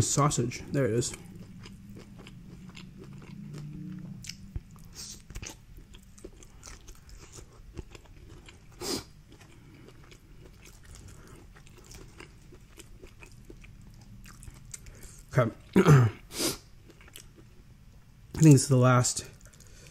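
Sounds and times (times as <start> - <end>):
person chewing: 0.7 - 15.8, 16.6 - 17.6, 19.3 - 19.9.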